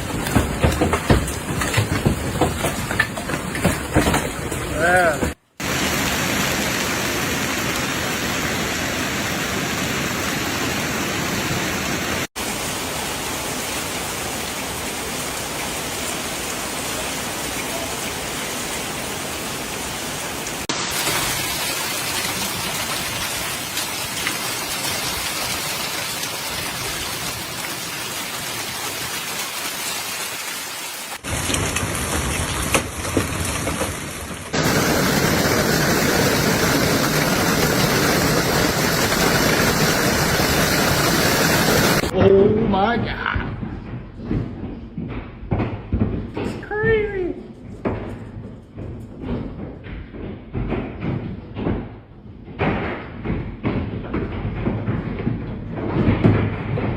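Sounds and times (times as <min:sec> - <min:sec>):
heavy rain pelting down: 0:00.0 - 0:42.2.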